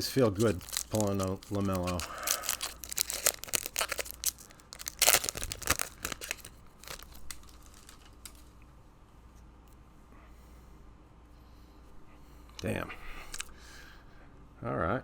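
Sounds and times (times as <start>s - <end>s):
foil wrapper crinkling and tearing: 0.0s - 8.5s.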